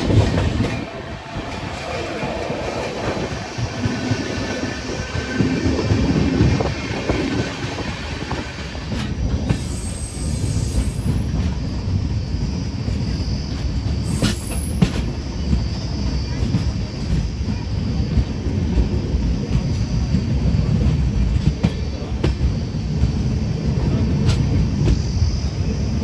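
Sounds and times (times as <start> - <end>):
train rumbling past: 0.0 - 26.0
high wheel squeal: 9.5 - 11.6.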